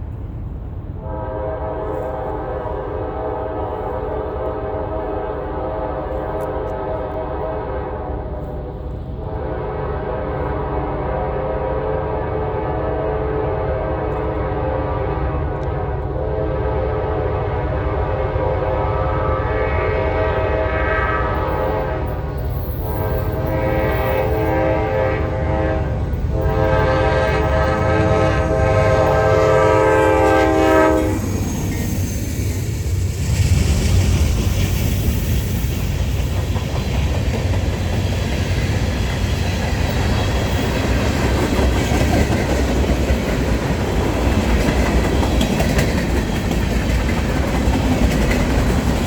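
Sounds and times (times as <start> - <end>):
passing train rumble: 0.0 - 49.0
locomotive air horn chord: 1.0 - 31.4.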